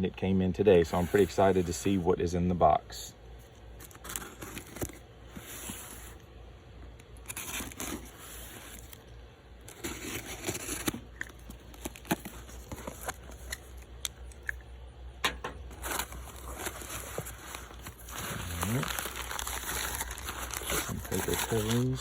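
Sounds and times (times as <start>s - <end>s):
cardboard rustling: 0.8s - 2.0s, 3.8s - 6.3s, 7.2s - 13.9s, 15.4s - 22.0s
tape tearing: 3.8s - 6.2s, 7.0s - 9.0s, 9.6s - 14.2s, 15.7s - 22.0s.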